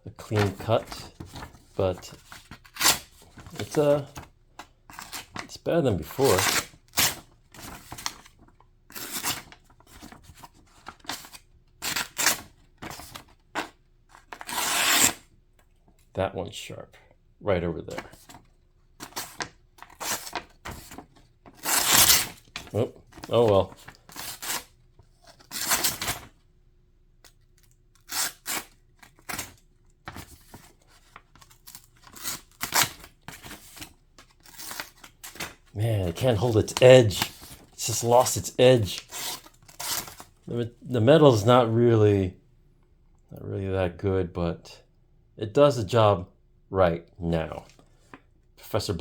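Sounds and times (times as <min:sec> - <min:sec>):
knife tearing through paper: 0:02.6 - 0:04.0, 0:06.1 - 0:08.1, 0:08.9 - 0:09.6, 0:11.0 - 0:13.2, 0:14.3 - 0:15.2, 0:19.0 - 0:21.0, 0:21.6 - 0:24.7, 0:25.4 - 0:26.3, 0:28.0 - 0:29.6, 0:38.2 - 0:40.3
knife slicing through paper: 0:14.4 - 0:15.2, 0:21.6 - 0:22.4.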